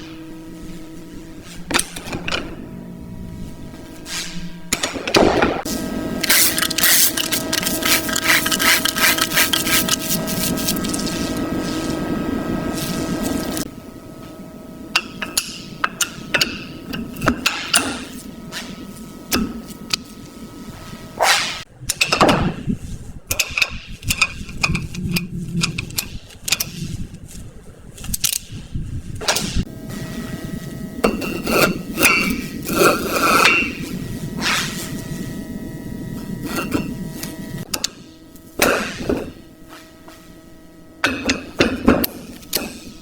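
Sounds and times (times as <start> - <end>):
steady hum: 0.0 - 43.0
rapid rubbing strokes: 6.3 - 12.1
swish: 21.2 - 21.6.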